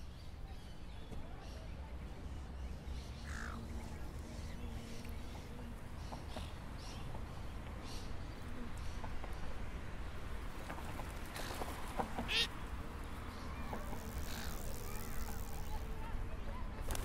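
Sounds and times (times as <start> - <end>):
birds calling: 2.5 - 9.2, 11.0 - 16.0.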